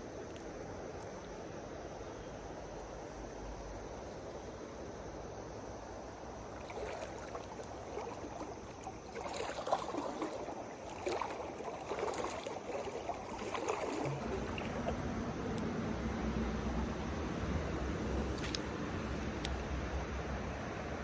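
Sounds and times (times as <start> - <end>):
river water running: 0.0 - 21.0
water splashing and sloshing: 6.3 - 21.0.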